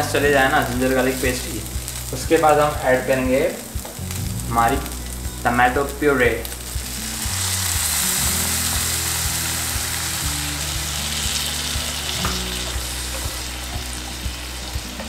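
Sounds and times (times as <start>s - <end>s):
sauce sizzling in hot oil: 0.0s - 15.0s.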